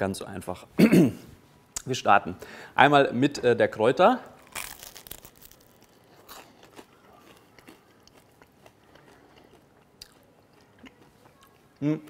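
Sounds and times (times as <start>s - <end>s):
crunching crispy bread: 4.4s - 10.2s.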